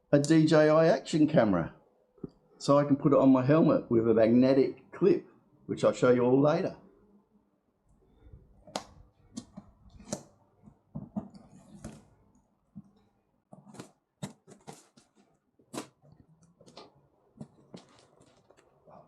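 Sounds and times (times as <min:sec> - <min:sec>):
packaging crinkling and rustling: 0:13.6 - 0:19.0.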